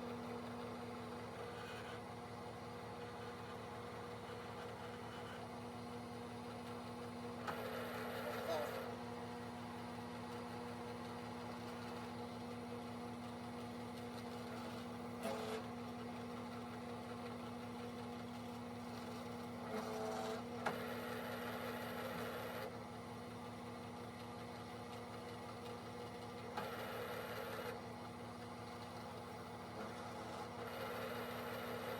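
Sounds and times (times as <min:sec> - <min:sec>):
drill press motor humming: 0:29.2 - 0:31.9.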